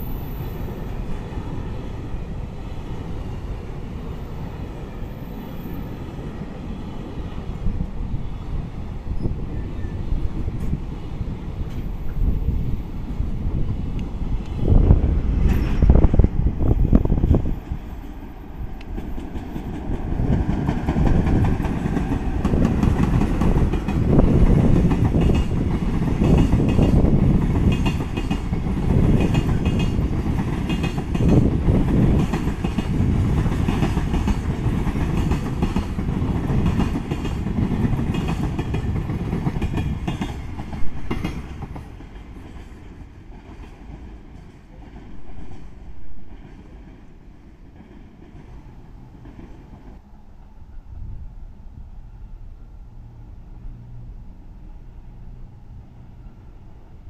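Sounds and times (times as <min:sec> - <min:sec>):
train rumble: 0:00.0 - 0:57.0
wheels clacking over rail joints: 0:18.7 - 0:46.9.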